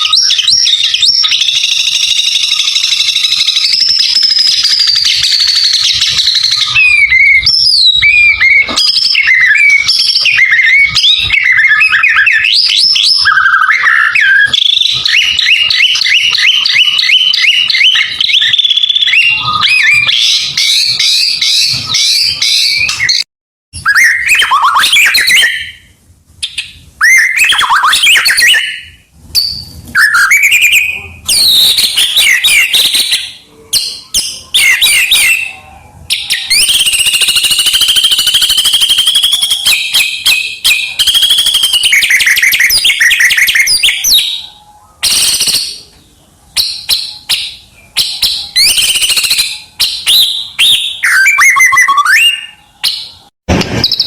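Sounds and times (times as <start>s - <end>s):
songbird singing: 0.0s - 23.2s.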